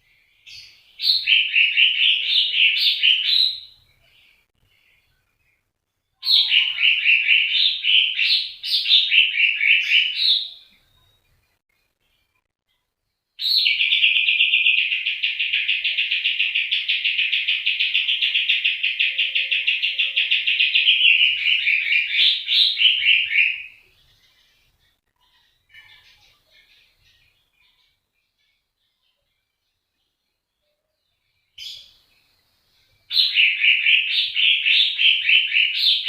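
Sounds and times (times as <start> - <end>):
songbird trilling: 6.2 - 10.6, 13.4 - 24.5, 33.1 - 36.0.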